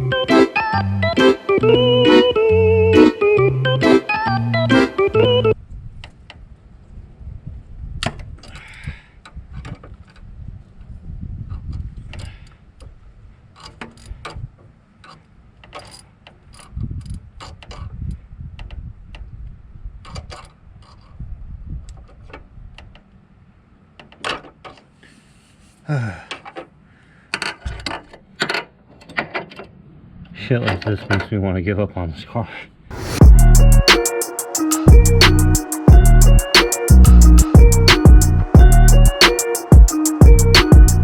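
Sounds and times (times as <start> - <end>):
person grunting: 25.9 - 26.3.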